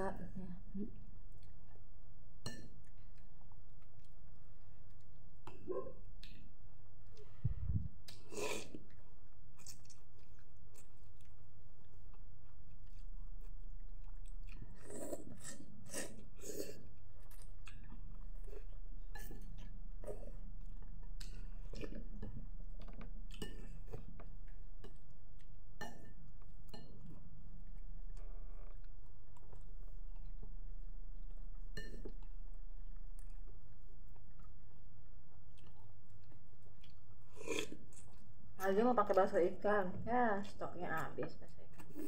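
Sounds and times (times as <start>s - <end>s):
steady low hum: 0.0s - 22.8s
person eating noodles: 8.0s - 27.9s, 35.4s - 38.3s.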